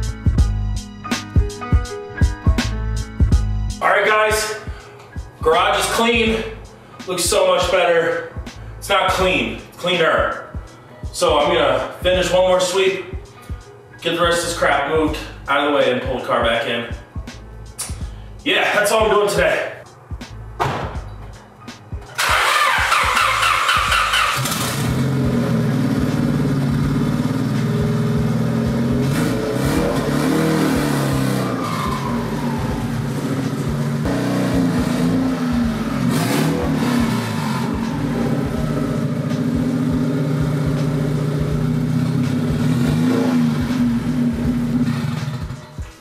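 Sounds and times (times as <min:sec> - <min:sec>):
car engine idling: 0:22.2 - 0:45.6.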